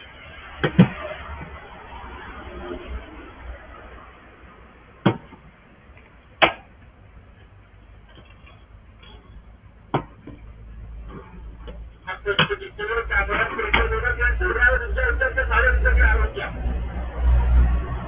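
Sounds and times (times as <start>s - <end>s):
metal gate clanking: 8.1s - 9.5s.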